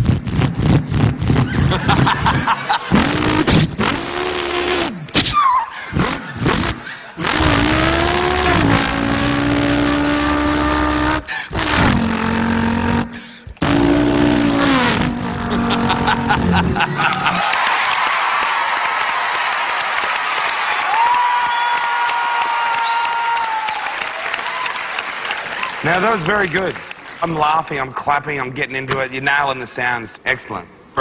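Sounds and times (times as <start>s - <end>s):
man imitating car engine: 2.9s - 17.4s.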